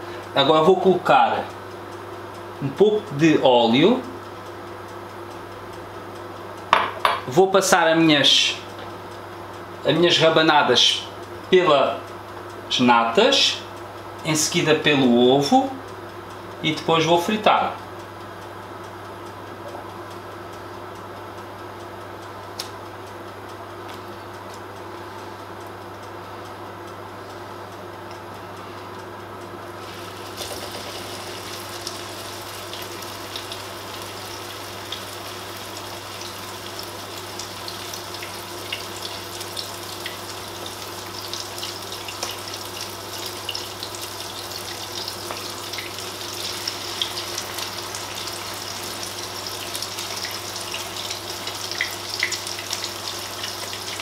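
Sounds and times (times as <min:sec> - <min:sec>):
steady background hum: 0:00.0 - 0:54.0
bread frying in hot oil: 0:29.7 - 0:54.0.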